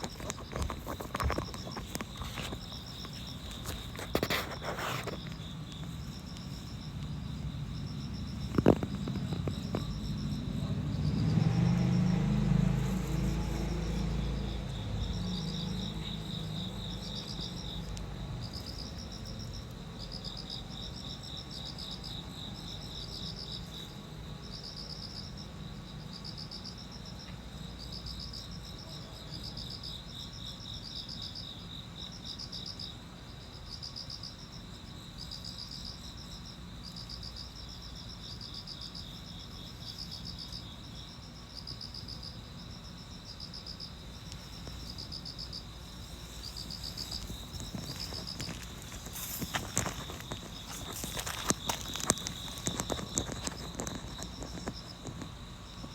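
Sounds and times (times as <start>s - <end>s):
low background rumble: 0.0s - 23.2s, 42.6s - 55.9s
crickets chirping: 0.0s - 55.9s.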